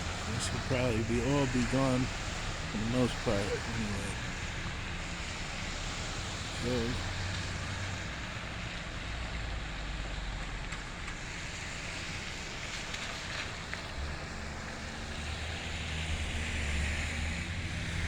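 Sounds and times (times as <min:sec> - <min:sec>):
low engine drone: 0:00.0 - 0:04.5
passing traffic rumble: 0:00.0 - 0:18.0.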